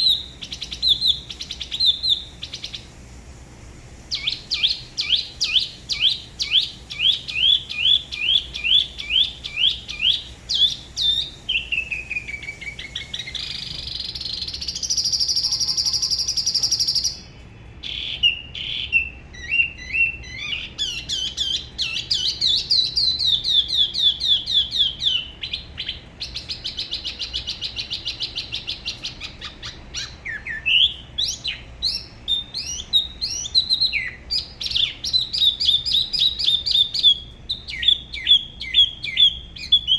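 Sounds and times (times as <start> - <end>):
buzzy bird trill: 0.0 - 39.9
bird whistling falling notes: 4.1 - 17.2.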